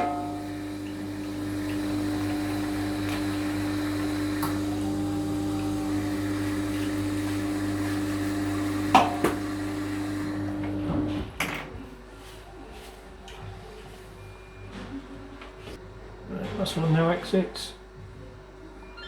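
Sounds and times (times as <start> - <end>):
electric motor hum: 0.0 - 11.2.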